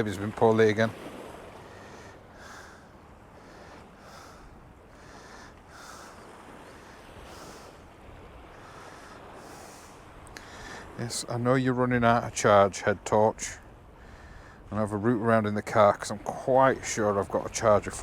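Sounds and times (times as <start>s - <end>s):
faint wind noise: 0.0s - 18.0s
man breathing close: 1.6s - 7.8s, 8.5s - 11.0s, 14.0s - 14.7s.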